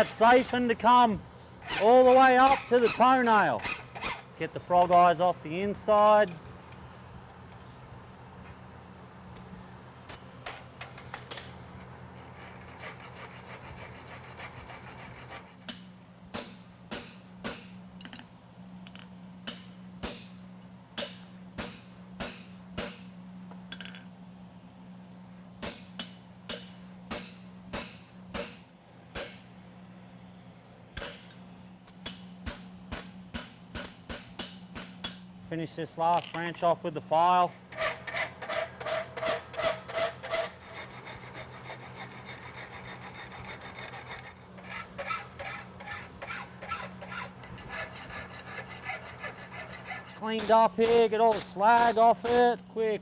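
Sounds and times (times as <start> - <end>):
file rasping on steel: 1.6 - 4.3, 12.1 - 15.7, 37.7 - 52.5.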